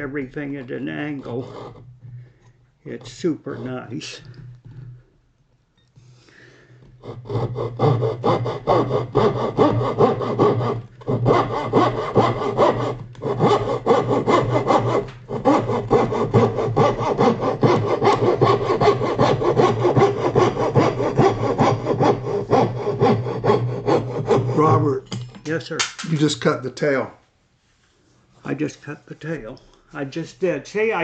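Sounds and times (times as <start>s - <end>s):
hand saw cutting wood: 0.0s - 2.1s, 2.9s - 5.0s, 6.8s - 25.0s.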